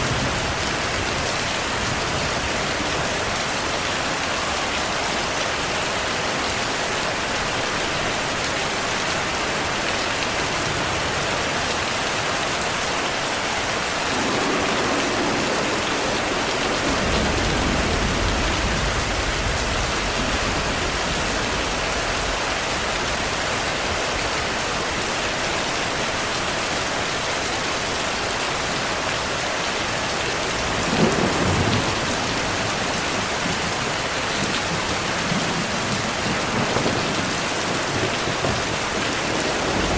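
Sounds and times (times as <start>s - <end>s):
heavy rain falling: 0.0s - 39.9s
thunder rumbling: 13.8s - 23.2s, 30.5s - 39.9s
sharp thunder crack: 14.0s - 20.6s.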